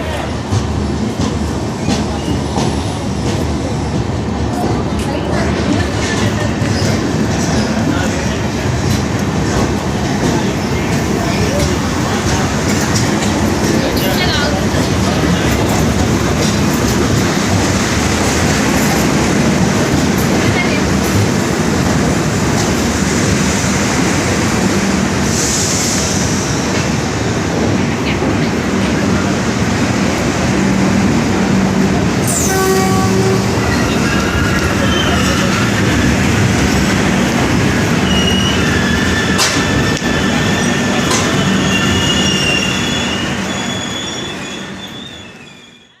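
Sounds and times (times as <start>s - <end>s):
train rumbling on rails: 0.0s - 46.0s
high wheel squeals: 37.9s - 46.0s.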